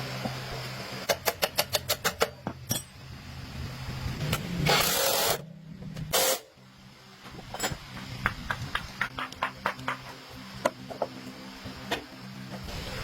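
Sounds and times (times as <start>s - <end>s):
low steady hum: 2.2s - 13.0s.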